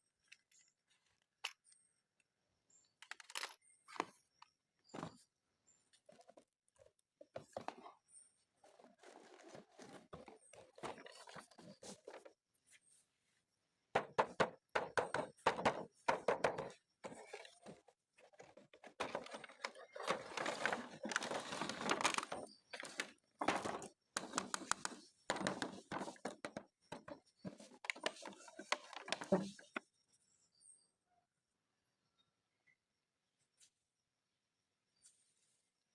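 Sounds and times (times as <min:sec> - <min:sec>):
plastic parts clicking: 0:03.0 - 0:04.1, 0:15.5 - 0:29.8
plastic packaging rustling: 0:18.3 - 0:26.4, 0:27.0 - 0:29.7.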